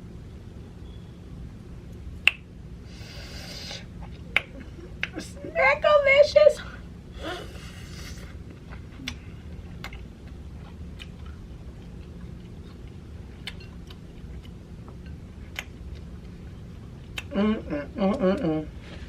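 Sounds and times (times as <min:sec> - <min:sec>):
low steady hum: 0:00.0 - 0:19.0
mouth clicks and smacks: 0:03.6 - 0:05.2, 0:08.0 - 0:11.4, 0:15.5 - 0:16.1, 0:17.0 - 0:17.4
close chewing: 0:08.4 - 0:17.3.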